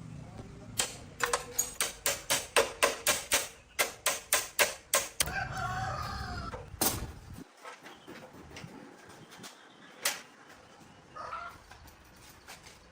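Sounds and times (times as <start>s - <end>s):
rooster crowing: 5.2s - 6.7s.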